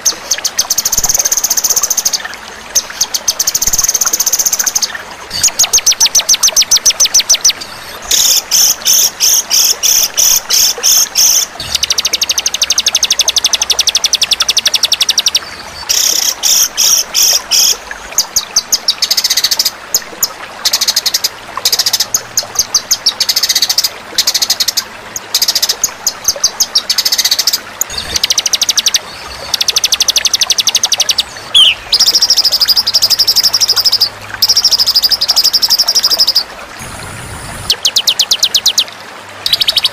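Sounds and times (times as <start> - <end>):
songbird buzzy trills: 20.7 - 36.5, 37.5 - 39.9.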